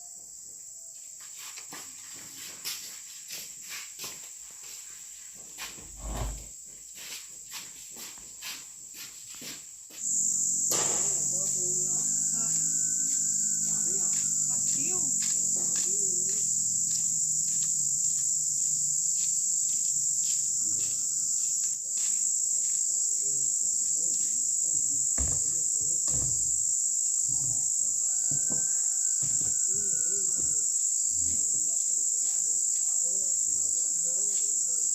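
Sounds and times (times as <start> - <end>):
insects droning: 0.0 - 34.9
light knocks: 25.2 - 26.5.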